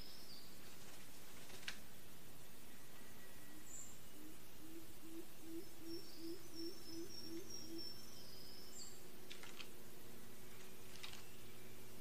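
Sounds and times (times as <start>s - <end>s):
low hollow bird notes: 2.6s - 9.0s.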